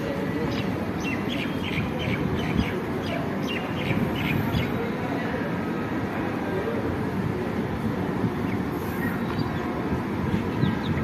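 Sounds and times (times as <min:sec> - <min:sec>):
bird chirping: 0:00.5 - 0:04.8.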